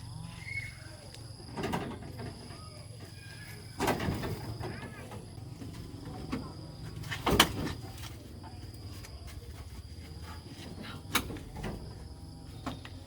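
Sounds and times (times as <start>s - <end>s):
faint chirps: 0.0s - 1.3s.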